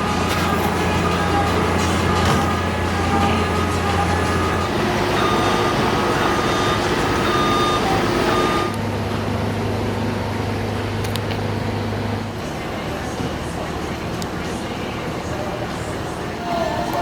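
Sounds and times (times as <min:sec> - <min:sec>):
reversing alarm beeping: 0:00.0 - 0:08.8
heavy machinery engine: 0:00.0 - 0:17.0.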